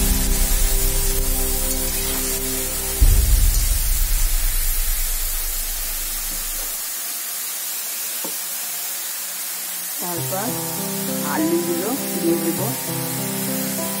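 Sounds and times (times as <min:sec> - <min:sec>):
low rumble: 0:00.0 - 0:06.8
cabbage sizzling in pan: 0:00.0 - 0:14.0.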